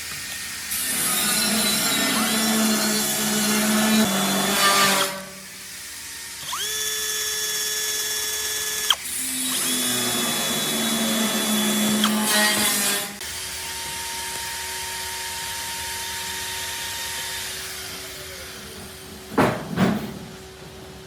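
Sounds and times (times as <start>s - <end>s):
electric drill motor whining: 5.7s - 18.2s
drill bit biting into material: 6.4s - 12.8s.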